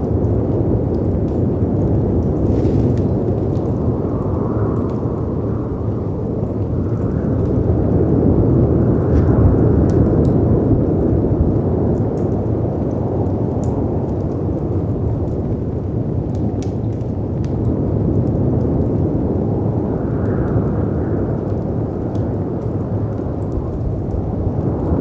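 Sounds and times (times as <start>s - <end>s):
storm wind rumble: 0.0s - 25.0s
wood fire crackling: 0.0s - 25.0s.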